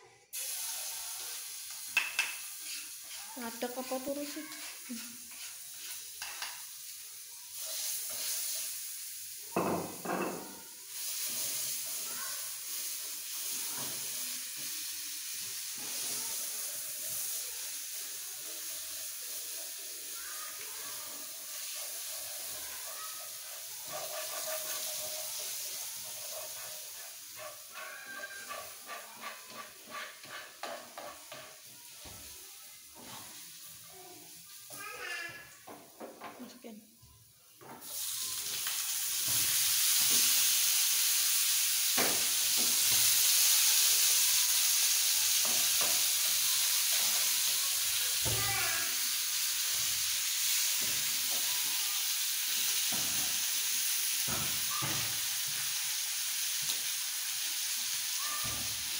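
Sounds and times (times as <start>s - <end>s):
meat sizzling in a frying pan: 0.3s - 36.2s, 37.5s - 58.9s
spatula scraping and tapping pan: 1.7s - 6.8s, 7.6s - 8.8s, 20.6s - 32.3s, 45.3s - 47.5s.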